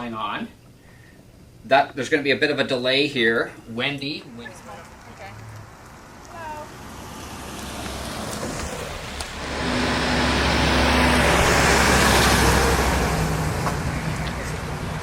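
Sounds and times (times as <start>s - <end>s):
car driving past: 4.9s - 15.0s.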